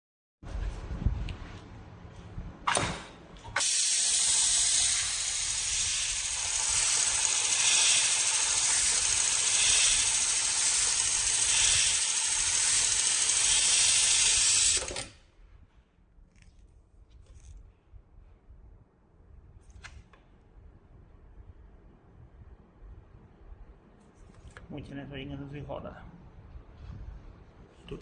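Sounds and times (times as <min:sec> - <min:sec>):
air hissing under pressure: 0:03.6 - 0:15.1.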